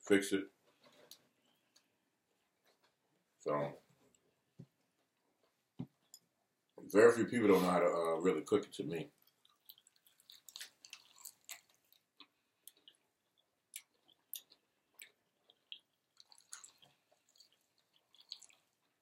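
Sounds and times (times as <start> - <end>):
chewing and crunching: 9.1 - 19.0
wet mouth sounds: 13.7 - 19.0.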